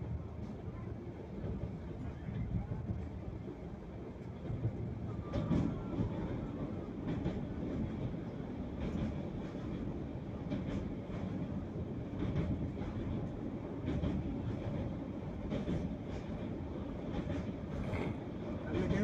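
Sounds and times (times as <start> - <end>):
train wheels rumbling on rail: 0.0 - 19.0
rail joint clacks: 4.2 - 19.0.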